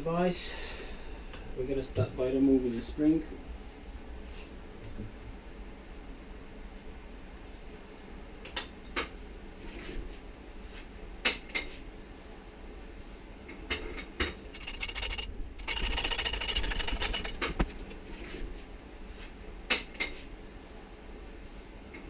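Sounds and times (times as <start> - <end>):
rapid tool rattling: 14.4 - 18.0
sharp metal clicks and knocks: 14.5 - 18.0.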